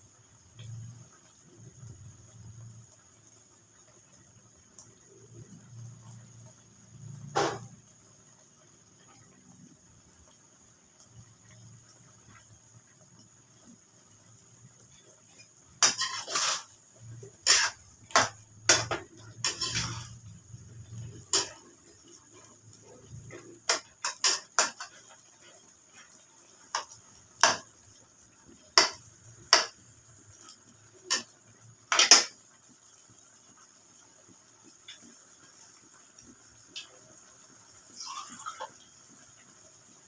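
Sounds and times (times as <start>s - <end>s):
metal utensil clinking on cookware: 15.8s - 16.7s, 17.4s - 20.2s, 21.0s - 21.7s, 23.3s - 25.0s.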